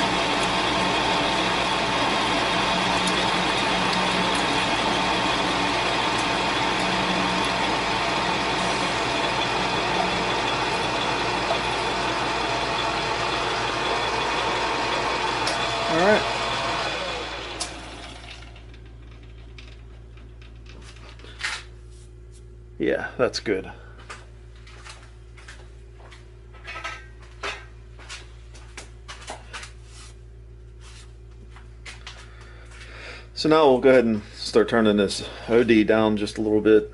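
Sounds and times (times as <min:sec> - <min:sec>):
metal lathe humming and whining: 0:00.0 - 0:19.2.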